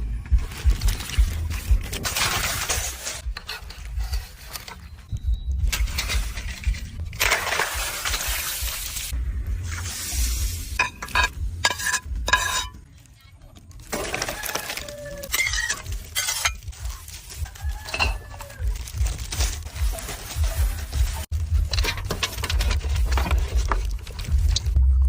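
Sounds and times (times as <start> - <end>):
stirring: 10.8 - 12.8
utensils and dishes clattering: 10.8 - 12.8, 13.8 - 24.2.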